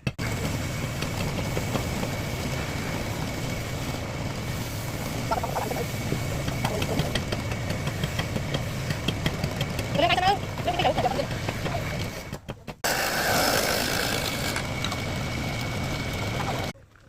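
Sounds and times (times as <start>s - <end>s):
high whine: 0.2s - 7.3s
machine humming: 0.2s - 11.4s.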